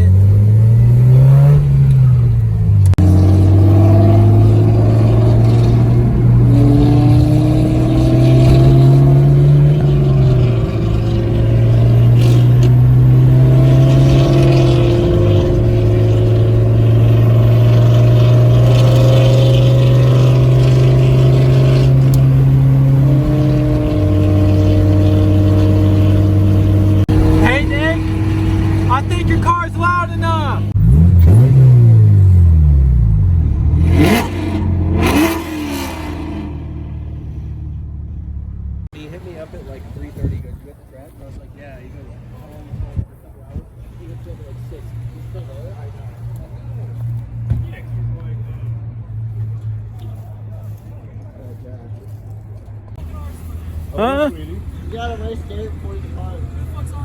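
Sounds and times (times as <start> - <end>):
car engine accelerating through gears: 0.0 - 38.9.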